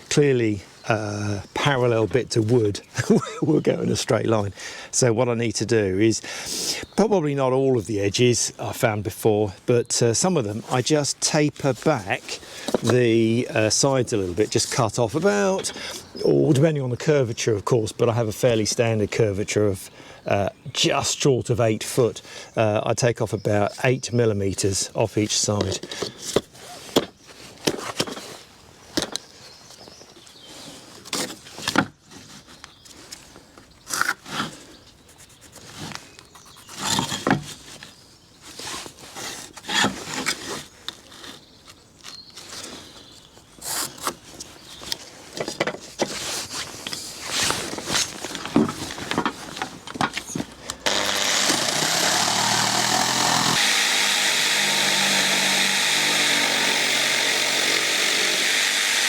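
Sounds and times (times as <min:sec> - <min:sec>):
electric power tool cutting wood: 0:50.8 - 0:59.0
timber knocking: 0:50.9 - 0:59.0.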